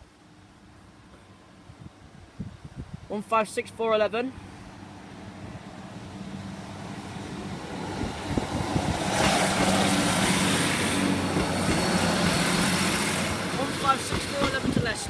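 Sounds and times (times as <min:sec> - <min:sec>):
diesel engine hum: 0:03.6 - 0:15.0
train wheels rumbling on rails: 0:05.4 - 0:15.0.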